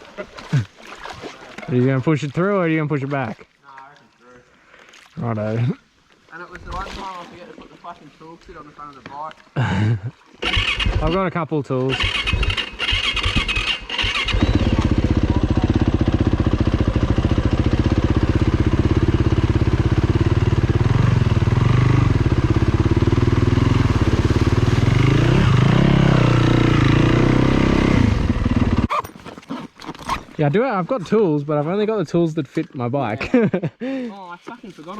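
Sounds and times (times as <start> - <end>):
dirt bike engine revving: 10.4 - 11.3, 11.9 - 28.9.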